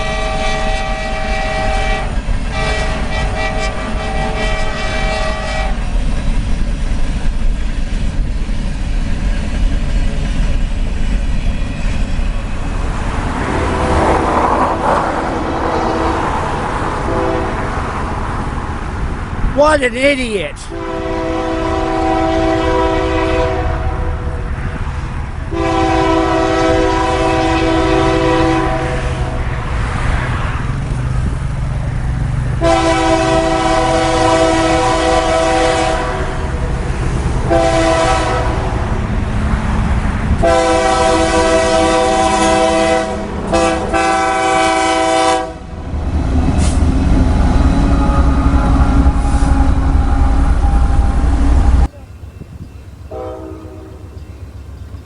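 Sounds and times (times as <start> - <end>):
locomotive air horn blasts: 0.0 - 6.0, 17.0 - 17.8, 20.6 - 24.4, 25.5 - 29.4, 32.6 - 36.6, 37.5 - 38.8, 40.4 - 45.8, 53.1 - 54.2
train rumbling past: 0.0 - 55.0.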